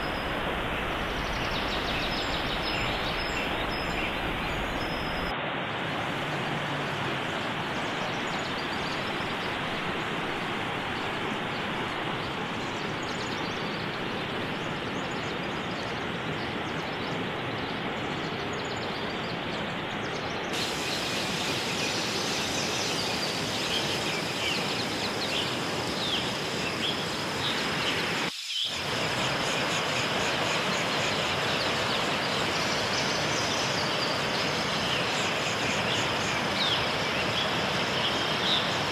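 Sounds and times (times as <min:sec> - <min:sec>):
birds chirping: 0:00.0 - 0:05.3
stream running over rocks: 0:00.0 - 0:18.6, 0:19.4 - 0:38.9.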